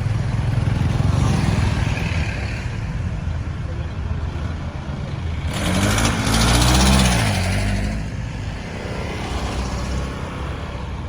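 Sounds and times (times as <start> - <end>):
steady traffic noise: 0.0 - 11.0
vehicle passing close: 5.0 - 11.0.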